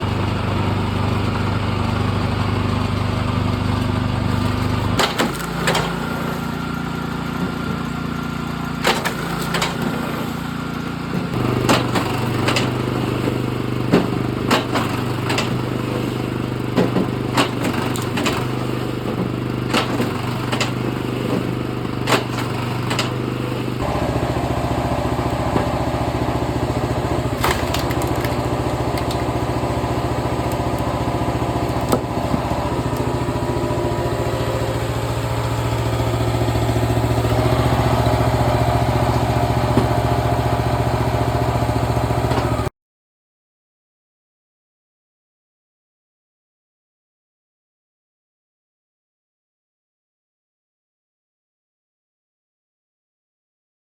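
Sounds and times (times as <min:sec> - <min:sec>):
log splitter engine running: 0:00.0 - 0:42.7
logs cracking and knocking: 0:26.8 - 0:33.9.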